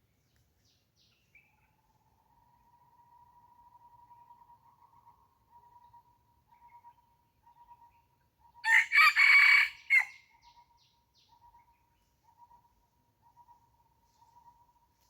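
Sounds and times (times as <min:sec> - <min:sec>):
rooster crowing: 0:08.6 - 0:10.2.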